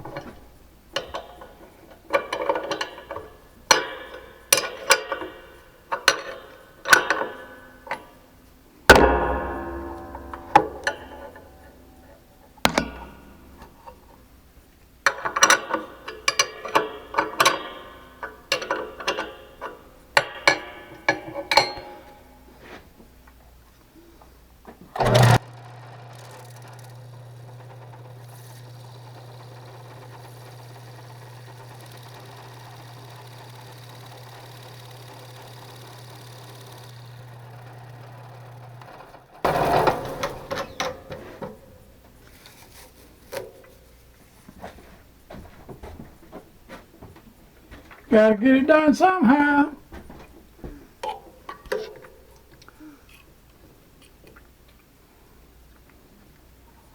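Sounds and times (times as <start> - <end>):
metallic knocks and clicks: 0.0 - 22.8, 38.9 - 41.9
steady motor hum: 0.0 - 48.1.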